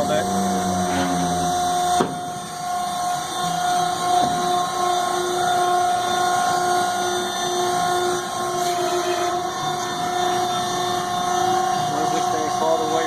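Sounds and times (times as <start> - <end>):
hydraulic power unit whining: 0.0 - 13.0.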